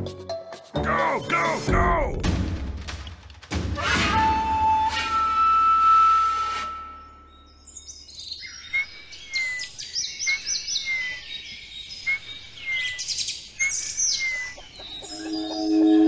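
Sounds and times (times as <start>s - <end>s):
birds chirping and twittering: 7.0s - 16.0s
whistled bird call slurring down: 12.0s - 16.0s.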